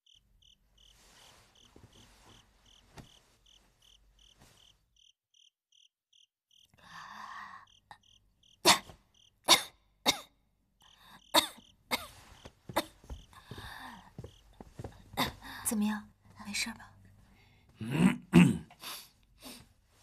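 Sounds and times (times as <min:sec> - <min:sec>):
crickets chirping: 0:00.0 - 0:09.4, 0:10.8 - 0:14.6
woman coughing: 0:08.7 - 0:10.4, 0:11.3 - 0:13.0.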